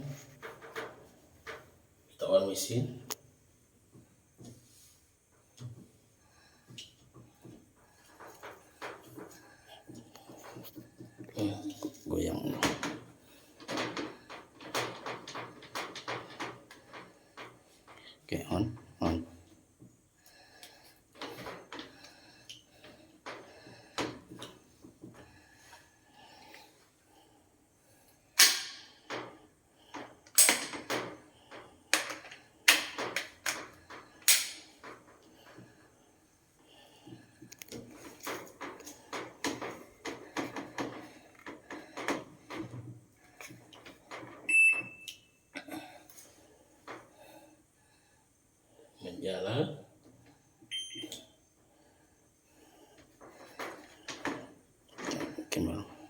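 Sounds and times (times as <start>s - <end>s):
knocking and clattering: 12.6s - 18.0s, 37.8s - 44.5s
sharp knocks and clatters: 12.6s - 18.0s
high electronic beep: 50.7s - 51.2s.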